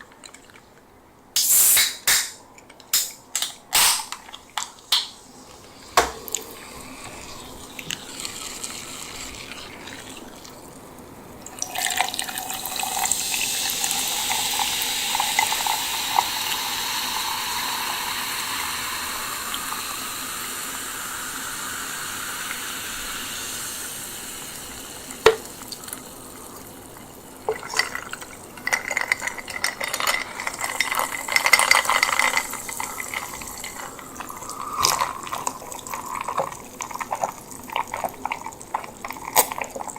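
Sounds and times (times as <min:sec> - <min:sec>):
drink pouring into a glass: 0:05.6 - 0:39.9
sharp knock: 0:06.0 - 0:06.3, 0:25.3 - 0:25.5.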